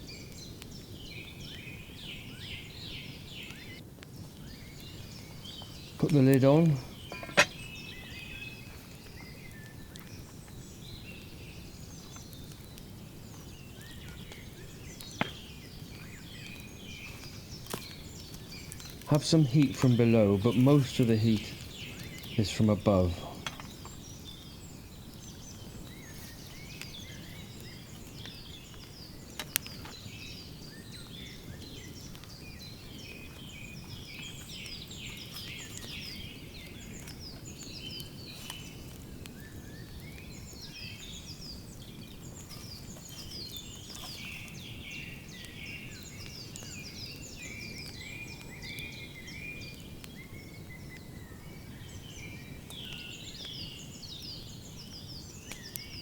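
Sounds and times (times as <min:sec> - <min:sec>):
birds chirping: 0:00.0 - 0:56.0
sharp crack: 0:06.0 - 0:07.8.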